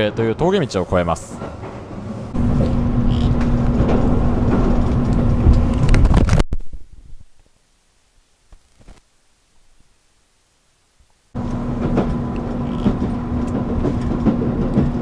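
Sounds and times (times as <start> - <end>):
train rumble inside carriage: 0.1 - 6.2, 11.4 - 15.0.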